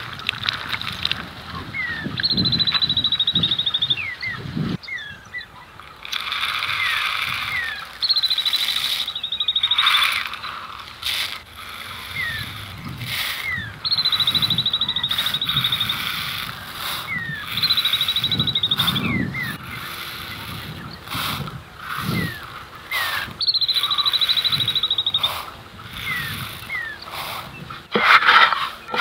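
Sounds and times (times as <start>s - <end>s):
bird buzzing trill: 1.6s - 29.0s
short downward bird chirps: 1.7s - 10.8s, 13.3s - 21.2s, 22.0s - 25.4s.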